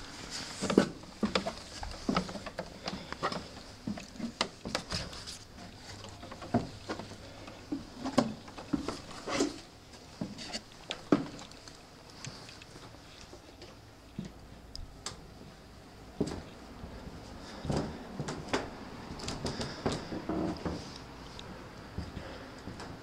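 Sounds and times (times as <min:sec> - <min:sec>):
footsteps on wooden stairs: 0:00.2 - 0:10.4, 0:16.2 - 0:23.0.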